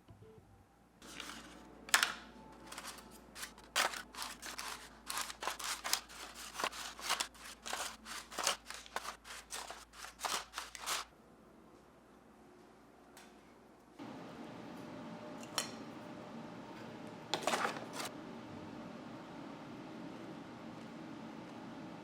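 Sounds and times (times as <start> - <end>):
utensil scraping mixing bowl: 2.8 - 11.1.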